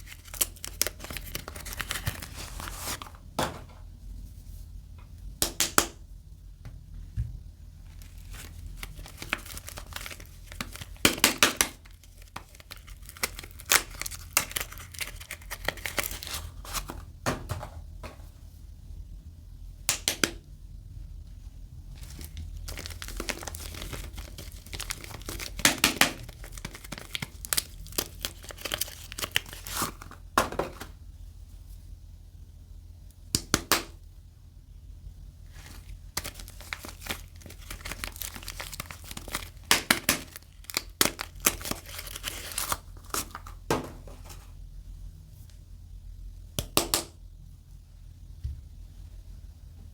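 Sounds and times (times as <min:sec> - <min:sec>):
wrapping crinkling and tearing: 0:00.0 - 0:03.2, 0:07.9 - 0:17.0, 0:22.0 - 0:30.2, 0:35.5 - 0:44.5.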